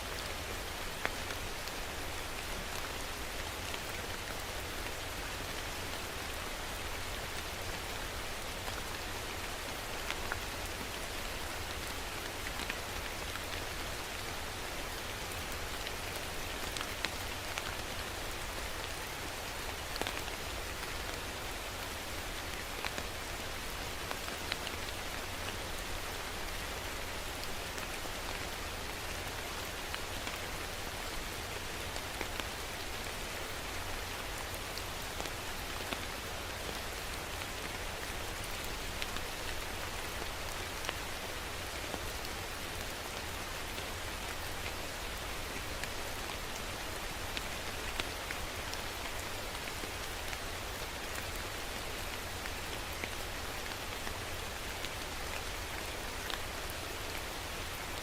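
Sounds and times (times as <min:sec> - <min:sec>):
steady rain hissing: 0:00.0 - 0:58.0.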